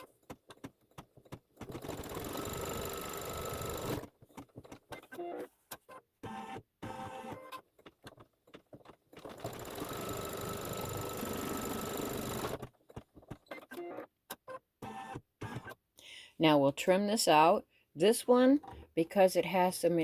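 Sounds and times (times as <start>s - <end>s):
embroidery machine stitching: 0.0s - 5.2s, 6.2s - 12.8s.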